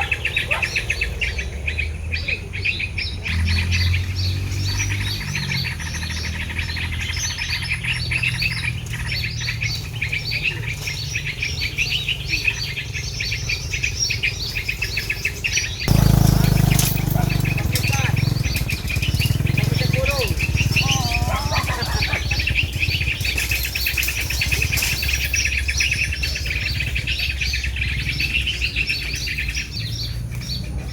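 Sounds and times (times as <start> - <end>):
small birds chirping: 0.0 - 30.9
loud rustling: 15.8 - 25.6.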